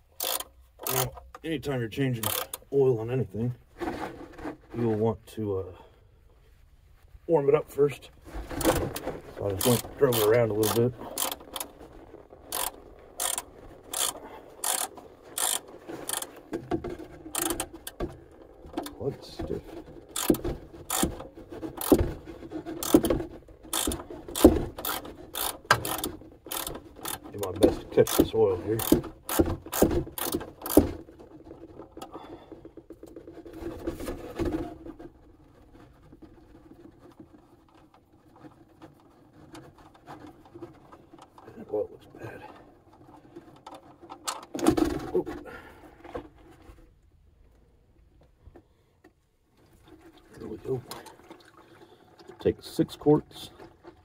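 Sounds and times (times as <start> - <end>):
ratchet wrench clicking: 0.2 - 1.2, 2.2 - 2.6, 9.6 - 11.7, 12.5 - 16.3, 17.4 - 17.6, 20.2 - 21.1, 22.8 - 23.1, 23.7 - 27.2, 28.1 - 30.9.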